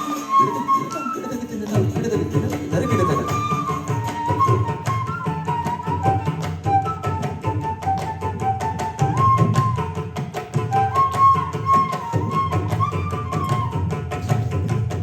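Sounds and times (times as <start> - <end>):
flute melody: 0.0 - 14.8
hand drums playing fast: 0.0 - 15.0.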